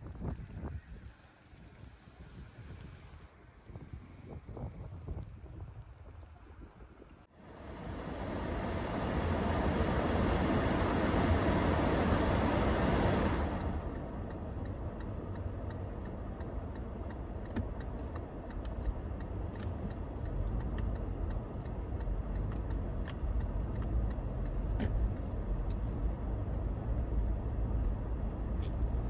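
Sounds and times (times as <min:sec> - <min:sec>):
car engine and tyres rumbling: 0:00.0 - 0:29.0
regular ticking: 0:13.6 - 0:24.8.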